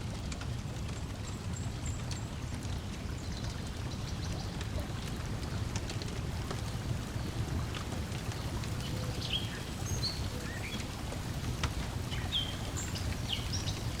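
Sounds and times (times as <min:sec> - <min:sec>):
water lapping: 0:03.5 - 0:14.0
wood fire crackling and popping: 0:04.6 - 0:14.0.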